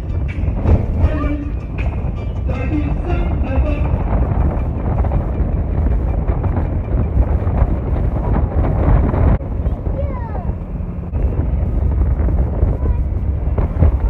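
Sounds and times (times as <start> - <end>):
faint voices: 0.0 - 5.1, 7.6 - 14.0
vehicle road and engine noise: 0.0 - 14.0
wind buffeting microphone: 0.0 - 14.0.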